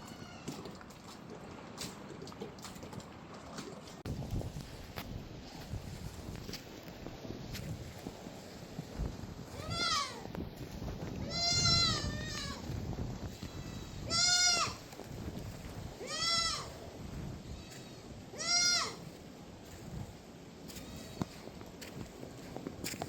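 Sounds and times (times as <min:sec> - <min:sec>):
goat bleating: 0:00.0 - 0:00.6, 0:09.5 - 0:10.3, 0:11.2 - 0:12.7, 0:13.4 - 0:14.9, 0:16.0 - 0:16.8, 0:17.4 - 0:19.0, 0:20.7 - 0:21.4.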